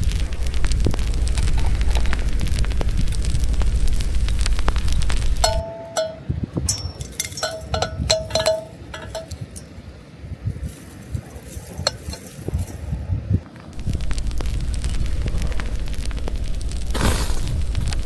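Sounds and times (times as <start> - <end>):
dishes and utensils clinking: 5.4 - 9.7, 11.4 - 12.8.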